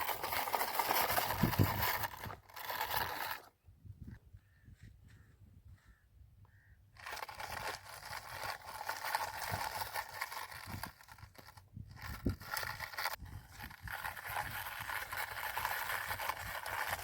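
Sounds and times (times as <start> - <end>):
sand and soil scraping: 0.0 - 3.5, 7.0 - 17.0.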